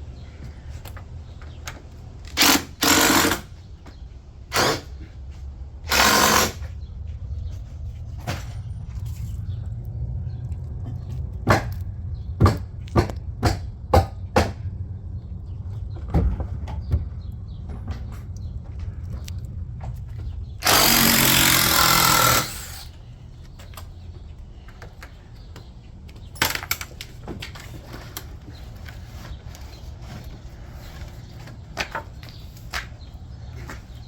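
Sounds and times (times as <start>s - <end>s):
handheld power tool running: 2.3s - 3.5s, 5.9s - 6.6s, 20.6s - 22.9s.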